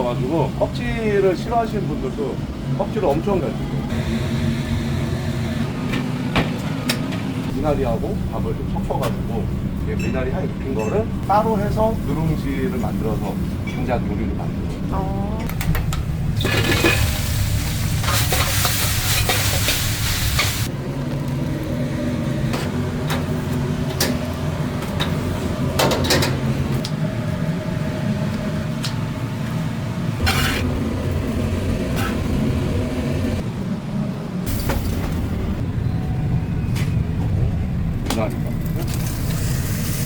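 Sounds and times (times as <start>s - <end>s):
food sizzling: 16.4s - 20.7s
low rumble: 27.1s - 40.0s.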